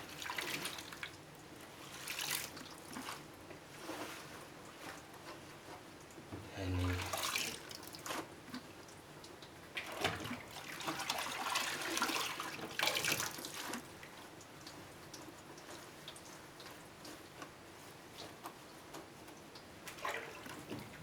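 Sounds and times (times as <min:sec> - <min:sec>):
water splashing in washing machine tub: 0:00.0 - 0:05.0, 0:06.7 - 0:21.0
faint water trickling: 0:00.0 - 0:21.0.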